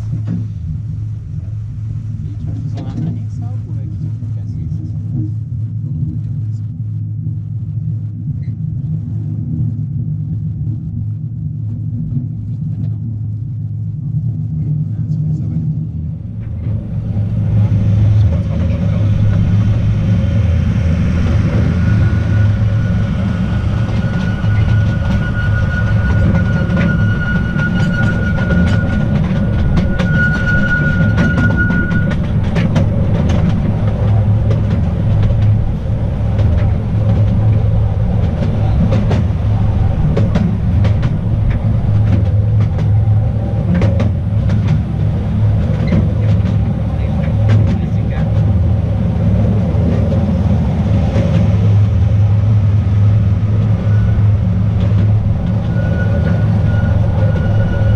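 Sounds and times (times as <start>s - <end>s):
thin high whine: 0.0s - 57.9s
train rumbling on track: 0.0s - 57.9s
wheels clicking on rails: 16.2s - 57.9s.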